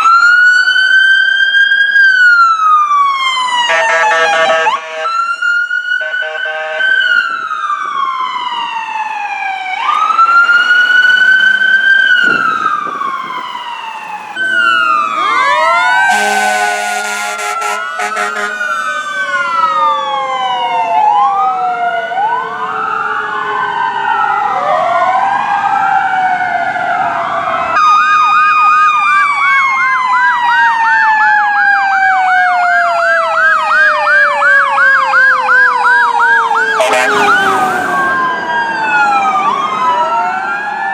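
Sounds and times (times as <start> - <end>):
fire sirens wailing: 0.0 - 40.9
warbling siren yelp: 0.0 - 40.9
horn blast: 3.6 - 5.3, 6.0 - 7.2, 10.9 - 19.4, 36.6 - 38.3.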